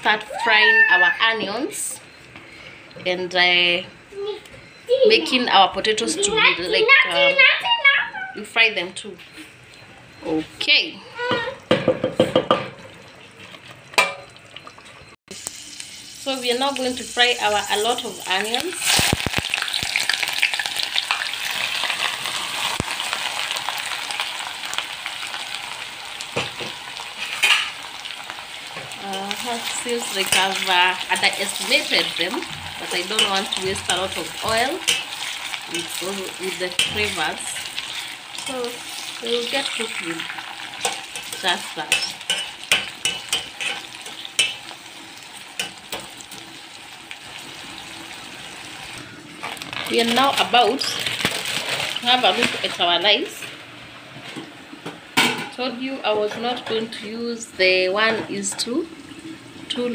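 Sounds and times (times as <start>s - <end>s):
spoon knocking against pan: 11.3s - 12.8s, 40.8s - 44.6s
onions sizzling in hot oil: 13.0s - 54.8s, 57.1s - 59.9s.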